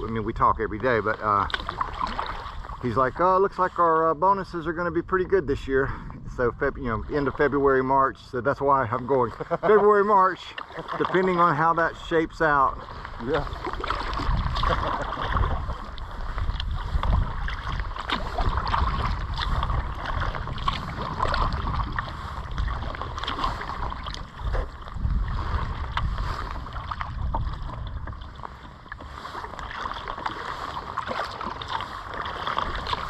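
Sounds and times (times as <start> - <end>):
wind on microphone: 0.0 - 8.3, 11.7 - 33.0
paddle splashing in water: 0.8 - 3.8, 9.0 - 33.0.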